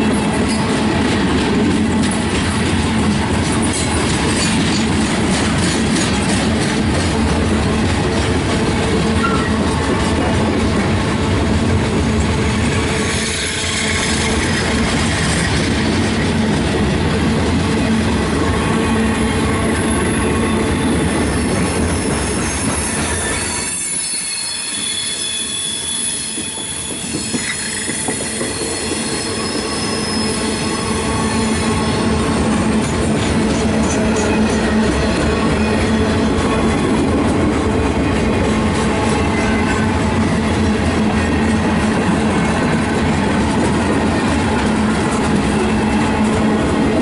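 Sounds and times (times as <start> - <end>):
railroad cars rumbling: 0.0 - 47.0
high wheel squeal: 18.6 - 32.3.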